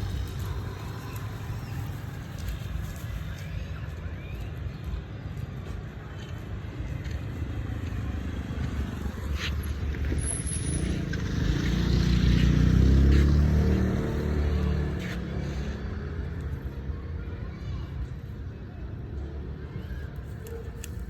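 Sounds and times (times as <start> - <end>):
vehicle engine passing: 7.4 - 16.6.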